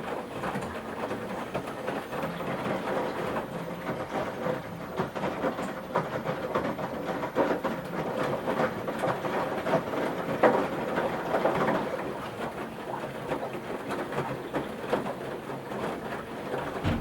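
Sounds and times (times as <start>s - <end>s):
washing machine sloshing and thudding: 0.0s - 17.0s.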